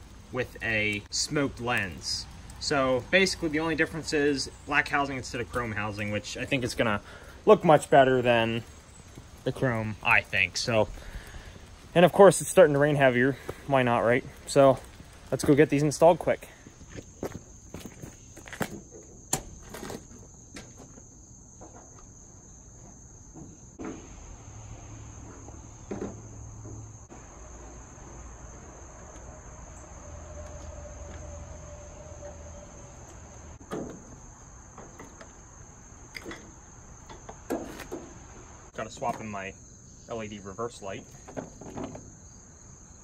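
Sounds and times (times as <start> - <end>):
high-pitched insect trill: 0.5 - 43.0.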